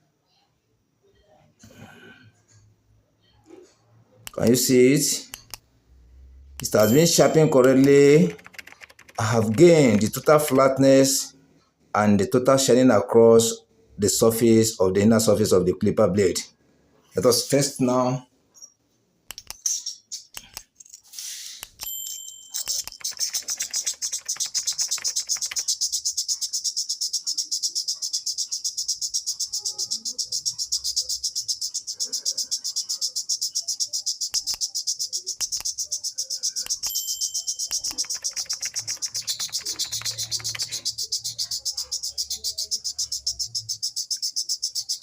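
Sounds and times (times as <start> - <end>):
cricket chirping: 22.5 - 45.0.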